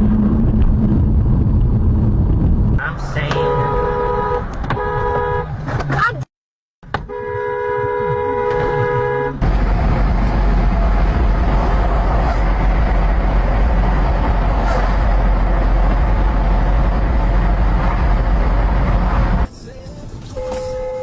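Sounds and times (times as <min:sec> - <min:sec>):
vehicle road and wind rumble: 0:00.0 - 0:21.0
car horn: 0:03.2 - 0:05.6, 0:07.0 - 0:09.4, 0:20.3 - 0:21.0.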